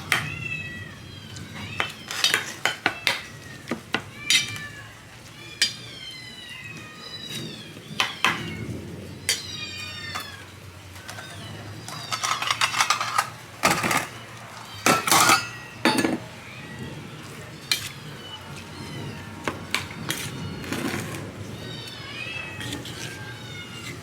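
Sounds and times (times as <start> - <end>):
cats meowing: 0.0 - 24.0
cans and dishes clattering: 11.0 - 14.2, 14.8 - 16.3.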